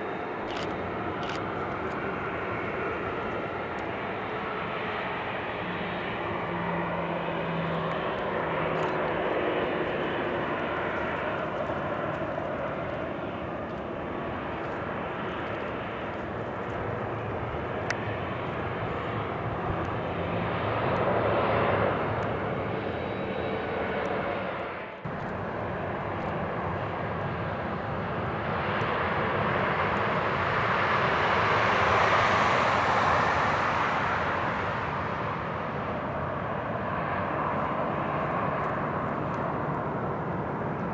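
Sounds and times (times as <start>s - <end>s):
jet engines passing: 0.0s - 40.9s.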